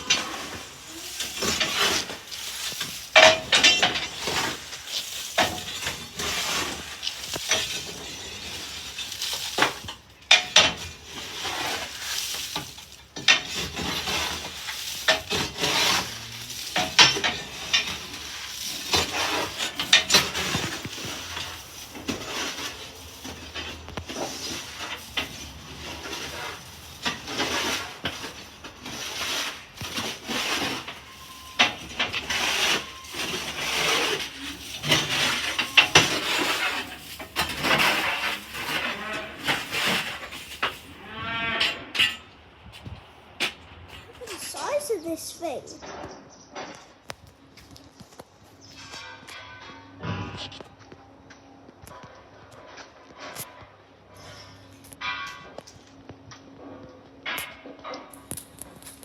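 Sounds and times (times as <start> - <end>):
metallic clanking and rattling: 0.0 - 28.4.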